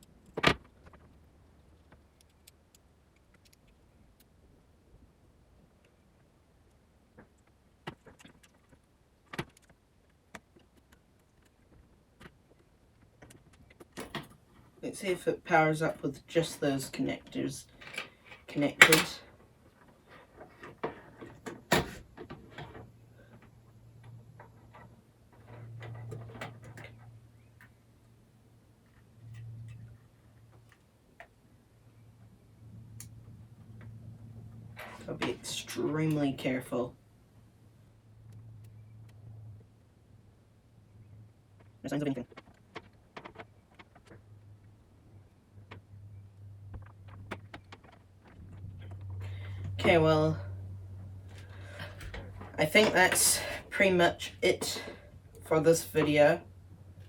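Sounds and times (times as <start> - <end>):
faint low hum: 0.0 - 57.0
small clicks and taps: 1.8 - 4.4, 6.7 - 14.3.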